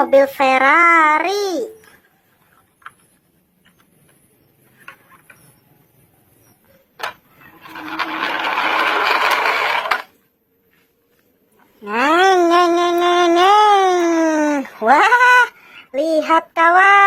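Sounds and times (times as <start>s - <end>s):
plastic toy clicks: 7.0s - 10.1s
toy car wheels rolling: 7.0s - 10.2s.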